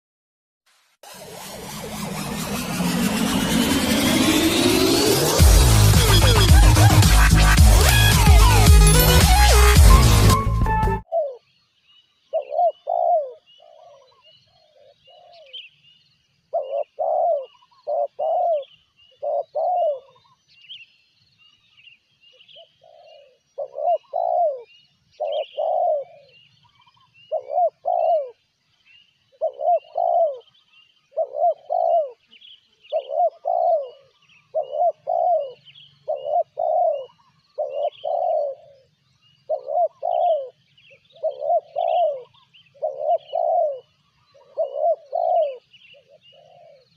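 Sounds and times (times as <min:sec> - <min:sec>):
doves cooing: 0:11.1 - 0:11.4, 0:12.4 - 0:15.5, 0:16.5 - 0:20.2, 0:22.8 - 0:28.4, 0:29.4 - 0:30.5, 0:31.2 - 0:38.9, 0:39.5 - 0:46.9
small birds chirping: 0:11.1 - 0:46.9.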